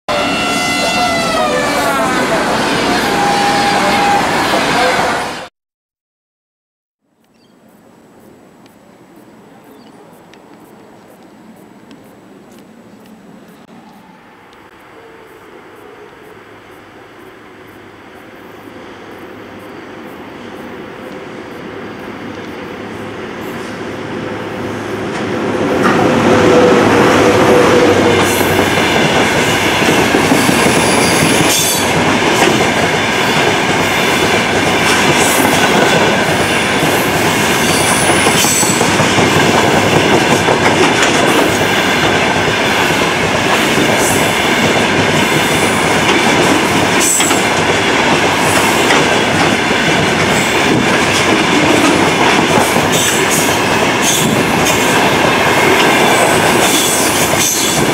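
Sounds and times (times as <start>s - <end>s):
freight train rolling rumble: 0.1s - 5.5s, 7.7s - 57.9s
wheels clacking over rail joints: 28.0s - 57.9s.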